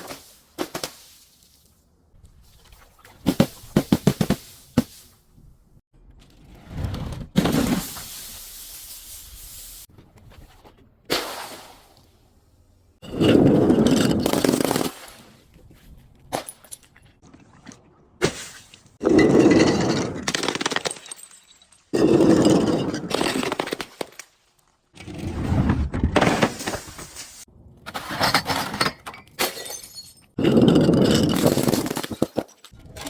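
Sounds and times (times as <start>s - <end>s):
objects and glass crushing: 13.0s - 14.9s, 19.0s - 24.3s, 26.0s - 33.0s.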